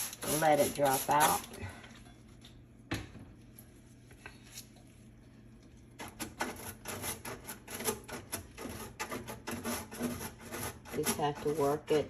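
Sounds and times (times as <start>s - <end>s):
toothbrush scrubbing: 0.0s - 1.5s, 6.2s - 11.9s.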